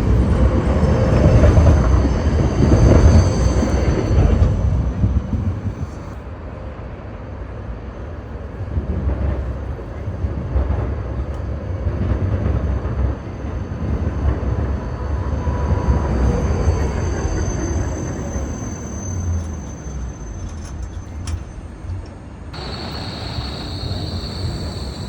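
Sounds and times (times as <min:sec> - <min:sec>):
train rumbling on rails: 0:00.0 - 0:25.0.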